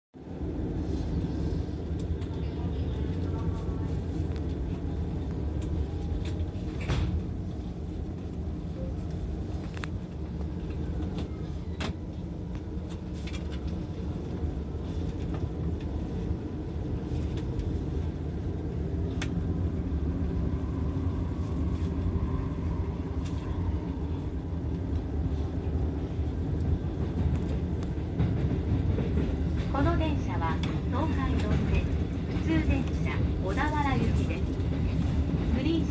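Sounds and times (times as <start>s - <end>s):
train rumbling inside carriage: 0.2s - 35.9s.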